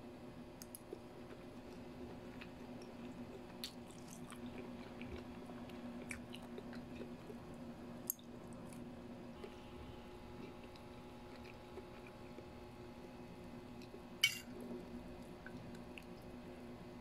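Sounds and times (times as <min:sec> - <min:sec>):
steady low hum: 0:00.0 - 0:17.0
person chewing food: 0:00.7 - 0:07.5, 0:08.1 - 0:09.7, 0:10.3 - 0:13.2.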